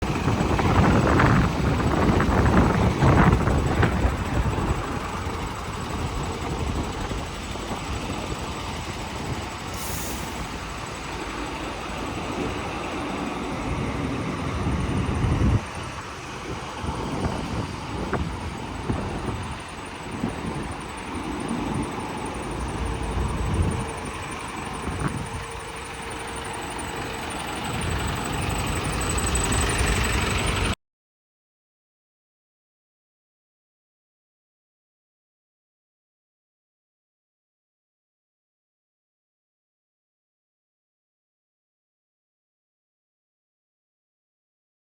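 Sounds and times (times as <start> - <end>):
diesel truck engine idling: 0.0 - 30.8.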